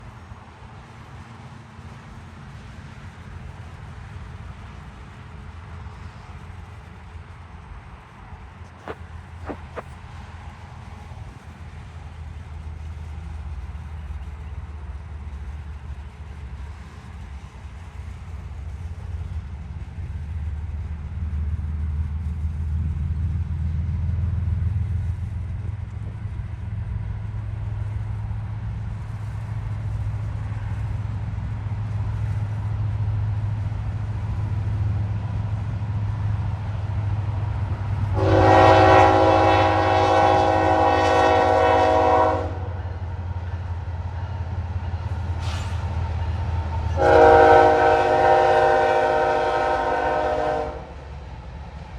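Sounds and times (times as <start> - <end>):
diesel locomotive engine rumble: 0.0 - 51.9
locomotive air horn chord: 38.1 - 42.7, 47.0 - 50.9.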